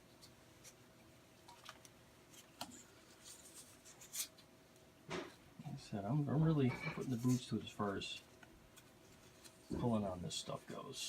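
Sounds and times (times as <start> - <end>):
tape crinkling and rubbing: 0.1 - 4.5, 8.3 - 9.9.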